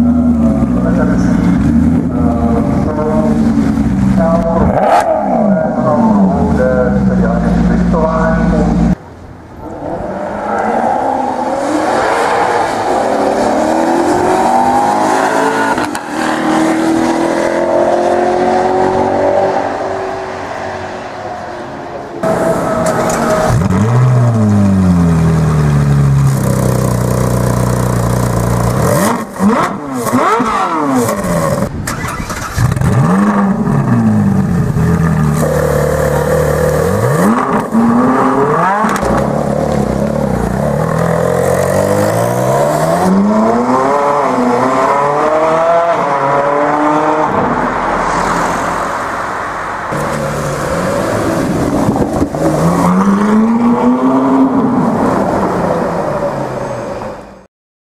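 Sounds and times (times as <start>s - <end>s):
sports car engine revving: 0.0s - 9.0s, 22.2s - 47.6s, 49.9s - 55.9s.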